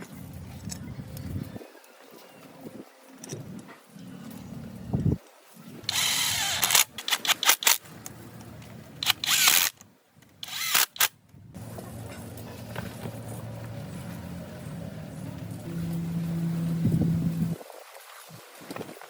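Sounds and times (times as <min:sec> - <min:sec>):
sharp clicks: 0:05.9 - 0:07.8, 0:09.0 - 0:11.2
power tool bursts: 0:10.4 - 0:11.1
low steady hum: 0:10.4 - 0:17.9.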